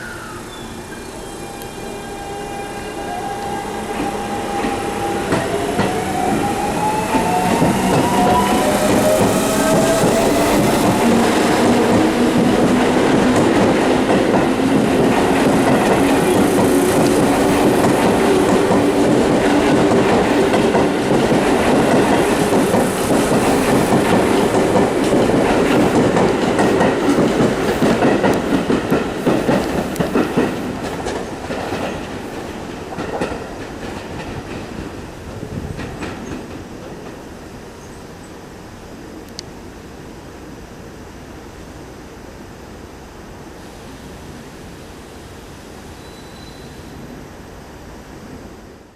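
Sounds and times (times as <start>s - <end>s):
train wheel noise: 0.5s - 37.5s.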